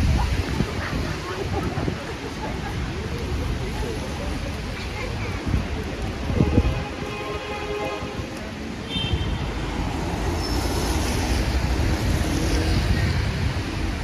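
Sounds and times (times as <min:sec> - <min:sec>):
low rumble of traffic: 0:00.0 - 0:14.0
wind on microphone: 0:00.0 - 0:14.0
vehicle passing on wet road: 0:05.4 - 0:14.0.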